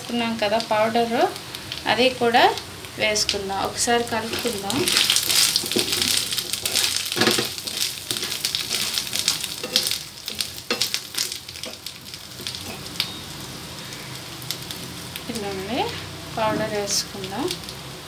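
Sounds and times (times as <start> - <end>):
roots sizzling in hot oil: 0.0 - 18.0
spatula scraping and knocking on pan: 4.2 - 13.0.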